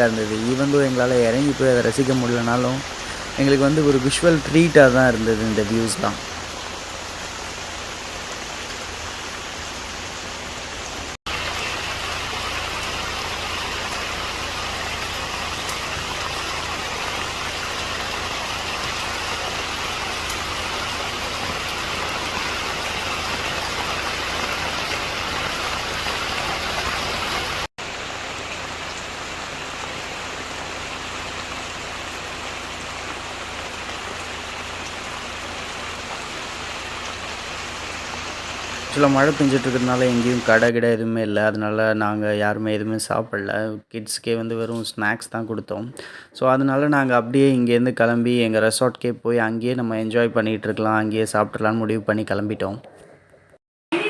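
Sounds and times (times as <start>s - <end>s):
heavy rain pouring: 0.0s - 40.7s.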